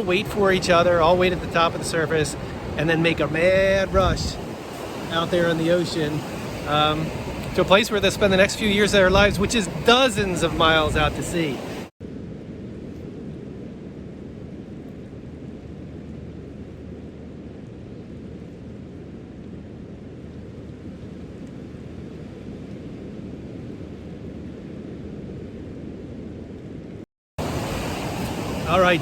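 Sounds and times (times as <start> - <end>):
ocean surf: 0.0 - 11.9, 27.4 - 29.0
wind: 0.0 - 29.0.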